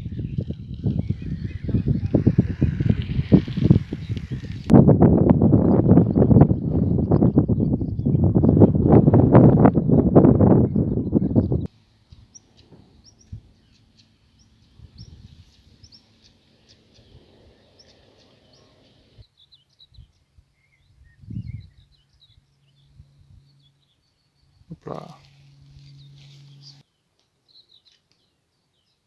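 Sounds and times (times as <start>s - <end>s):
lower bird twittering: 0.0s - 4.7s, 5.6s - 26.8s
high bird chirps: 25.2s - 26.8s.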